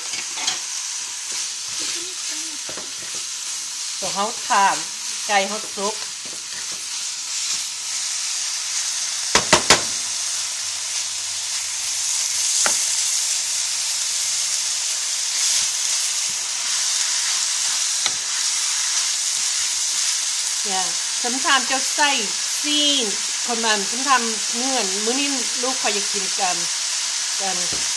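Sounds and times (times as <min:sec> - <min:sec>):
chicken sizzling in a pan: 0:00.0 - 0:27.9
spatula knocking on pan: 0:09.3 - 0:10.0.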